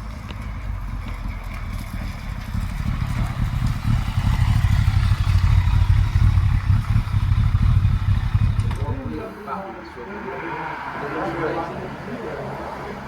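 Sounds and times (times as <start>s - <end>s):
motorcycle engine rumble: 0.0s - 9.4s.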